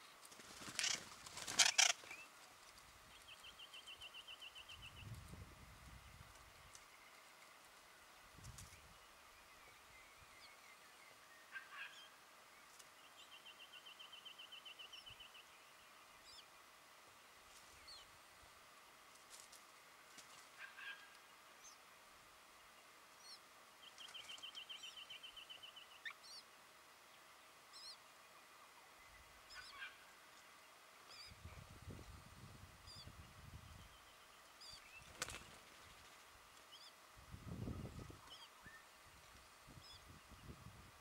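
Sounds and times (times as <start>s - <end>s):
faint bird calls: 0.0s - 2.4s, 9.4s - 12.2s, 20.4s - 21.8s, 27.7s - 31.6s.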